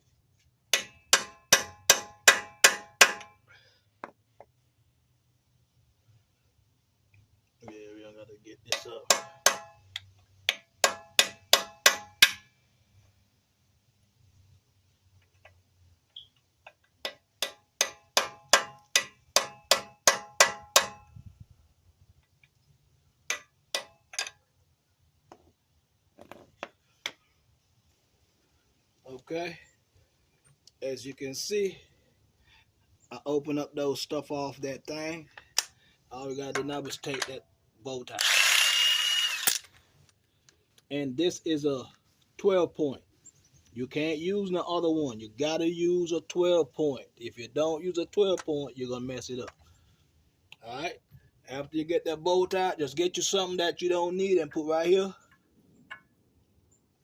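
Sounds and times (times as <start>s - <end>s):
hammer striking chisel on metal: 0.7s - 3.4s, 8.7s - 9.8s, 10.5s - 12.5s, 17.0s - 21.1s, 23.3s - 24.4s.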